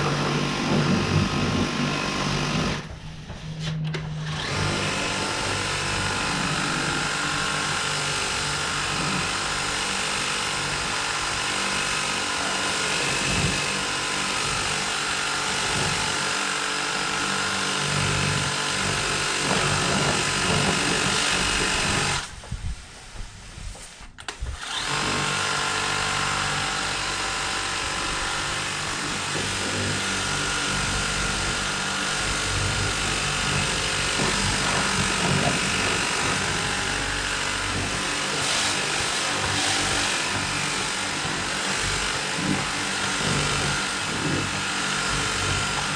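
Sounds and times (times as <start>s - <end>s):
pressure washer motor humming: 0.0s - 23.5s, 24.2s - 45.9s.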